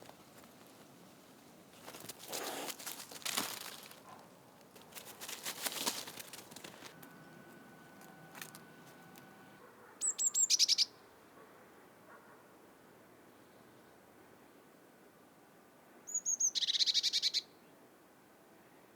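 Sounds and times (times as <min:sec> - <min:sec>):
rustling: 0:00.0 - 0:09.6
songbird high chirps: 0:07.0 - 0:11.0, 0:16.1 - 0:17.6.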